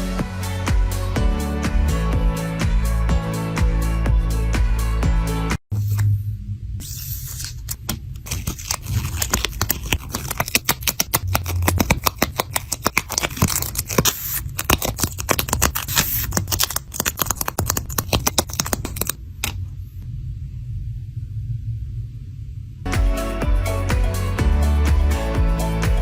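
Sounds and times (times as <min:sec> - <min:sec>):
low steady hum: 0:05.7 - 0:24.6
paper crackling and scraping: 0:06.8 - 0:19.2.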